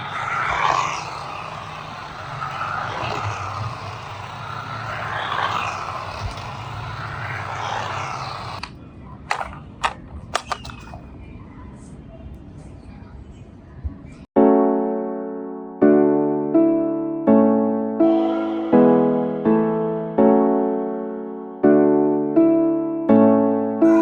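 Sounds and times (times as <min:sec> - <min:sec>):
toy car electric motor running: 0:00.0 - 0:08.7
sharp clicks: 0:04.3 - 0:11.0.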